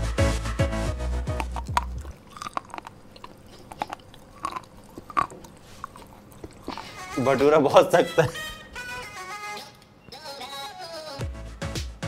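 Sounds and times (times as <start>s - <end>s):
electronic music: 0.0s - 2.1s
person chewing hard bread: 1.2s - 7.5s
wet mouth clicks: 1.3s - 7.2s.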